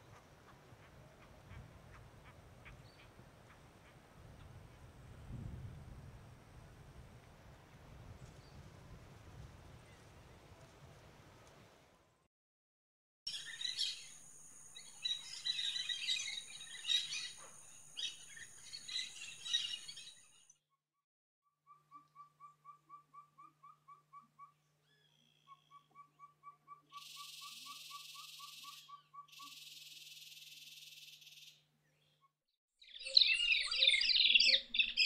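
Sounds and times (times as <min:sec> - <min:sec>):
birds chirping: 0:13.3 - 0:20.4, 0:32.9 - 0:35.0.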